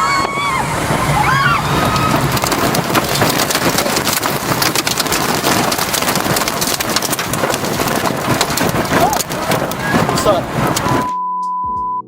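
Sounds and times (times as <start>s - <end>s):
jet engines at takeoff thrust: 0.0s - 3.8s.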